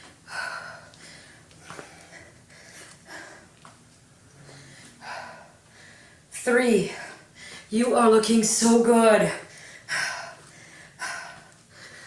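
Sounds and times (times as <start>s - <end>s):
woman breathing hard: 0.0s - 3.7s, 4.3s - 6.3s, 9.4s - 12.0s.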